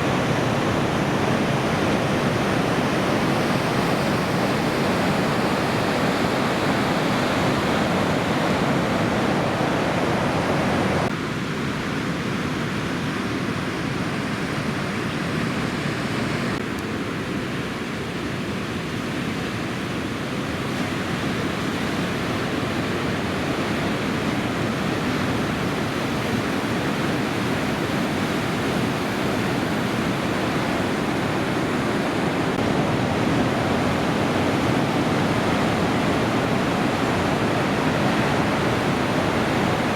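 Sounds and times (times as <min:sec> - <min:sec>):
surf breaking on a reef: 0:00.0 - 0:11.1, 0:17.2 - 0:39.9.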